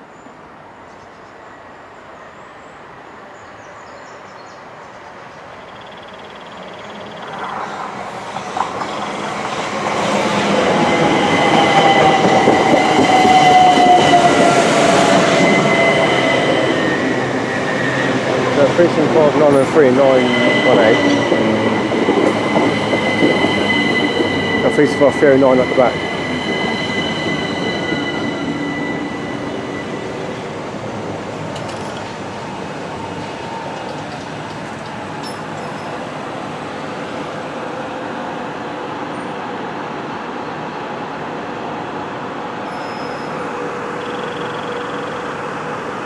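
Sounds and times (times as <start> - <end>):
train whine: 5.9 - 46.0
train rumble: 7.2 - 39.3.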